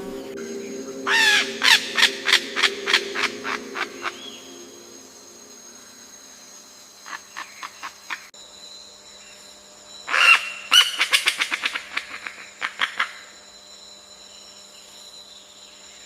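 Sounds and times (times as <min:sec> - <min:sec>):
bird calling: 0:00.0 - 0:04.9, 0:10.1 - 0:13.3.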